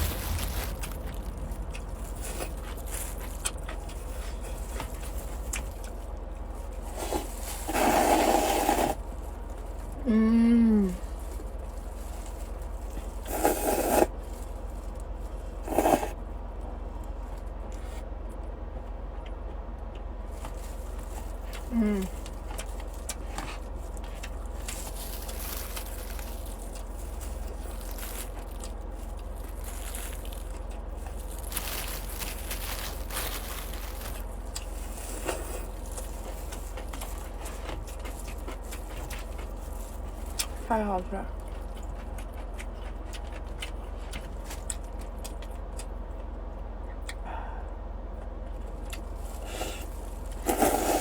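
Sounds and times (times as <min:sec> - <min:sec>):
chewing and mouth clicks: 0:00.0 - 0:06.3, 0:21.2 - 0:40.6, 0:41.3 - 0:46.2, 0:47.0 - 0:47.2, 0:48.2 - 0:51.0
steady low hum: 0:00.0 - 0:51.0
person slurping noodles: 0:07.0 - 0:09.0, 0:13.3 - 0:14.1, 0:15.7 - 0:16.2, 0:50.4 - 0:51.0.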